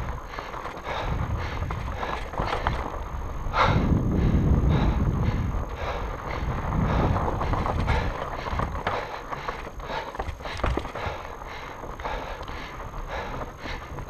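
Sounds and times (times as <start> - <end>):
wind on microphone: 0.0 - 10.0
bike rattling and knocking: 0.0 - 14.0
bike tyres rumbling over ground: 0.0 - 14.0.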